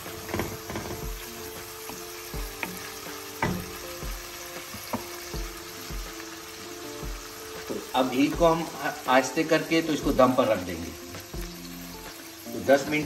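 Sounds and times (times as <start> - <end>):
curry sizzling in oil: 0.0 - 13.0
spoon knocking against a pan: 0.1 - 6.0.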